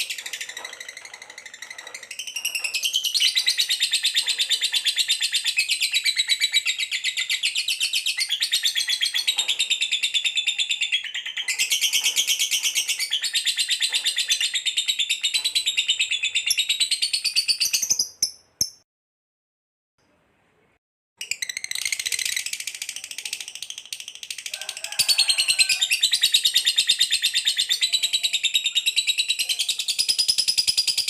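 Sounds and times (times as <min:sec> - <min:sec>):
small birds chirping: 0:00.0 - 0:18.8.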